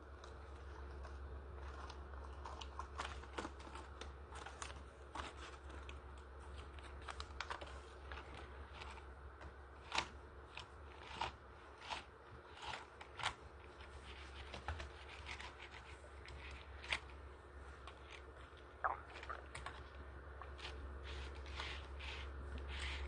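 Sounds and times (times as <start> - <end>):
low hum: 15.4 - 23.0.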